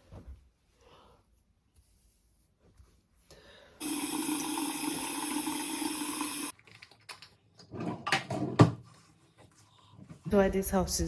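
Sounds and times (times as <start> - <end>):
water running from a tap: 3.8 - 6.5.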